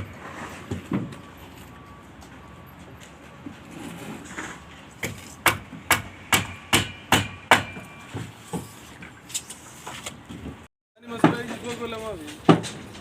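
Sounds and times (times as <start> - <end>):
hammer striking: 5.0 - 8.3.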